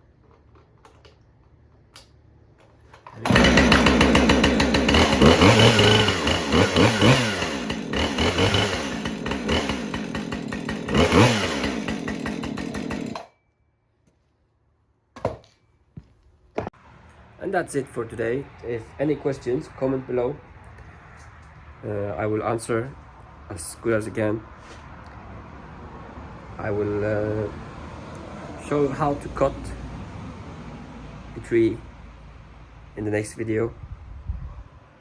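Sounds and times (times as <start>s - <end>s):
chainsaw revving: 3.0s - 13.3s.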